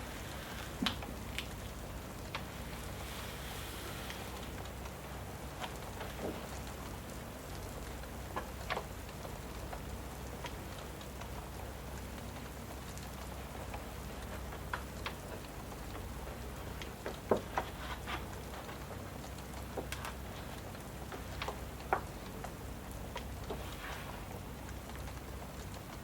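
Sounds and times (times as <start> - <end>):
steady rain: 0.0 - 26.0
wood fire crackling: 0.0 - 26.0.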